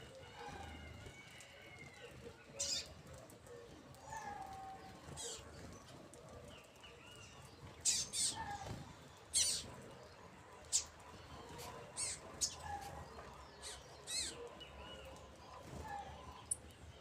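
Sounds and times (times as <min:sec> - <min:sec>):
small birds chirping: 0:00.6 - 0:17.0.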